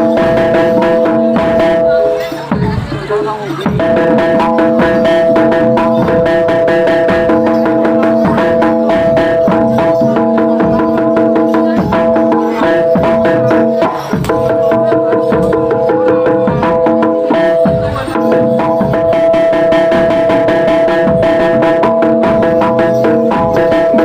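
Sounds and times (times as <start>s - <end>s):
hand drum strokes: 0.0s - 24.0s
sustained melody line: 0.0s - 24.0s.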